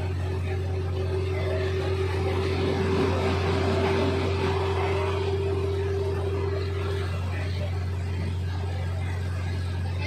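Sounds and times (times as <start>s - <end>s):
railcar engine drone: 0.0s - 10.0s
steady whine: 0.0s - 10.0s
wheels rumbling on rail: 0.0s - 10.0s.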